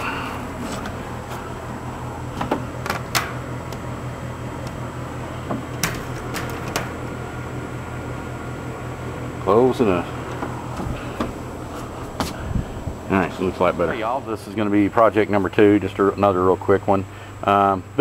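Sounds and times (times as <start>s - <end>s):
low hum: 0.0s - 17.9s
sharp clicks and knocks: 2.4s - 3.8s, 5.4s - 7.0s.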